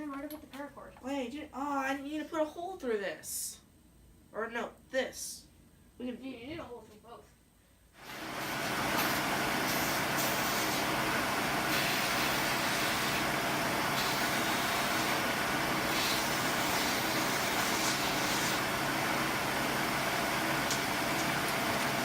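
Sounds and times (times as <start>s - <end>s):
electric motor humming: 8.0s - 22.0s
loud even hiss: 8.0s - 22.0s.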